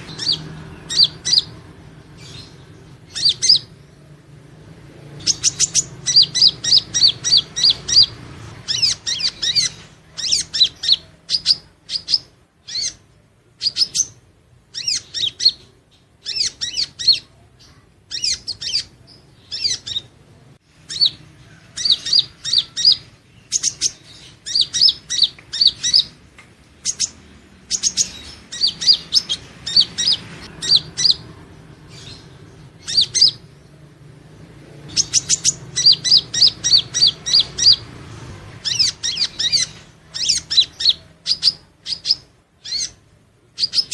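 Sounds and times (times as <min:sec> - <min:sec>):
bird chirping high thin notes: 0:31.9 - 0:33.6.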